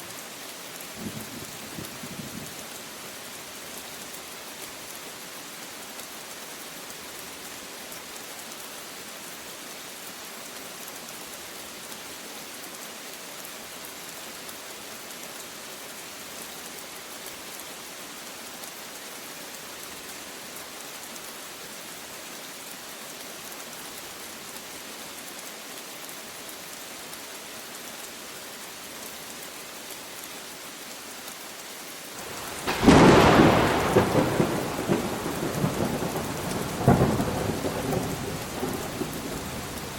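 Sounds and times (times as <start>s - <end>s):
steady rainfall: 0.0s - 39.9s
loud thunderclap: 32.3s - 39.9s.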